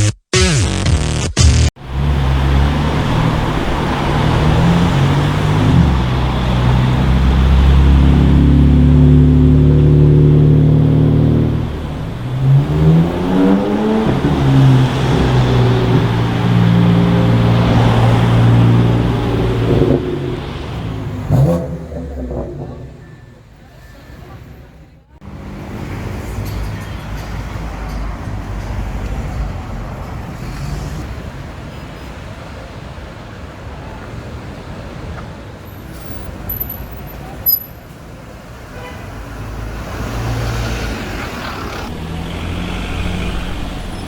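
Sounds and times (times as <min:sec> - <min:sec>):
car engine revving: 0:00.0 - 0:23.6, 0:39.4 - 0:44.0
street traffic noise: 0:01.6 - 0:44.0.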